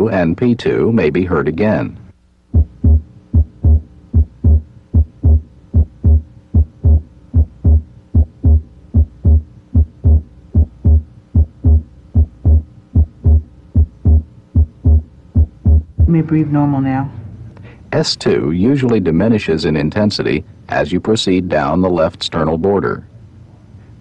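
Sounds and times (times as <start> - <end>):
heartbeat through a stethoscope: 2.5 - 16.2.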